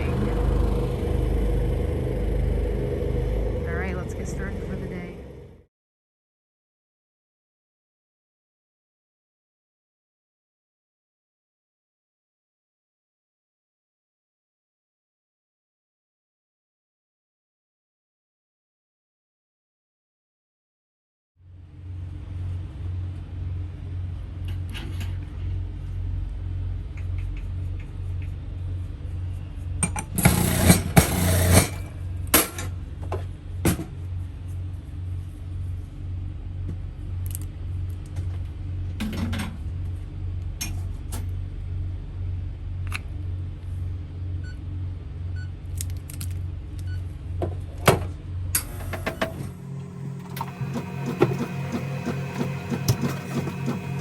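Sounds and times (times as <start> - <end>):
generators humming: 0.0 - 5.7, 21.8 - 45.7, 46.5 - 54.0.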